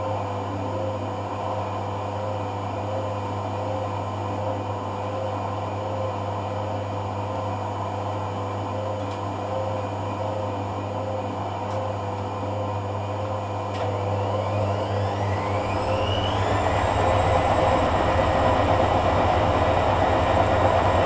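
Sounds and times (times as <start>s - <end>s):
motor rising whine: 2.9s - 4.4s, 13.4s - 20.9s
washing machine humming: 12.7s - 21.0s.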